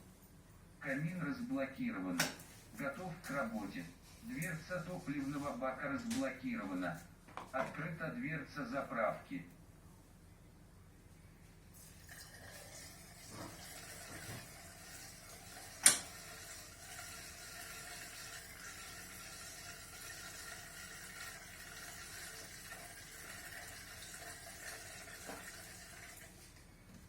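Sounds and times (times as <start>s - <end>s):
liquid fuel pouring into tank: 11.7s - 26.5s.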